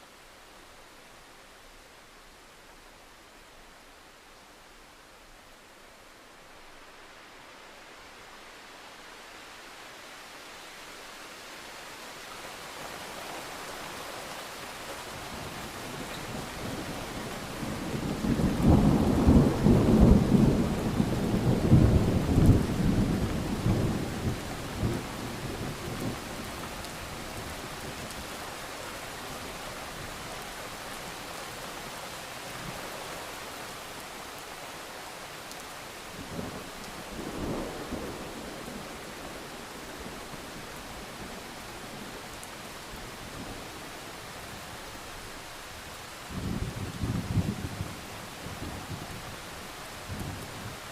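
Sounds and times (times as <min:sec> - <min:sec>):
steady rain: 0:00.0 - 0:50.9
thunder rumbling: 0:16.4 - 0:26.5.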